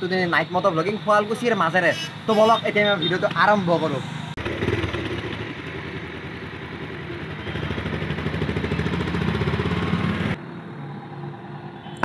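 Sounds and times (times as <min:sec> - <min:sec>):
motorcycle engine running: 0:04.4 - 0:10.4.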